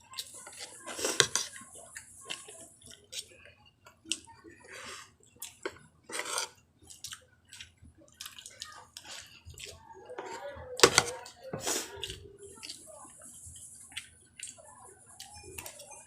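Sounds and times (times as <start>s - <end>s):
wet chewing and mouth smacking: 5.2s - 9.9s, 13.4s - 14.6s.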